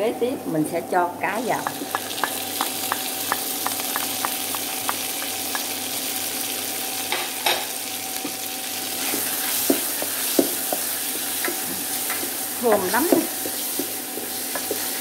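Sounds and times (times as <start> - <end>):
fish sizzling in hot oil: 1.4 - 15.0
spatula scraping in a pan: 9.0 - 15.0.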